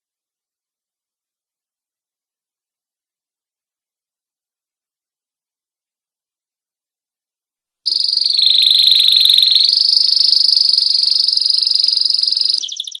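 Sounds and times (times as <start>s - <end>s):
canary trilling: 7.9s - 13.0s.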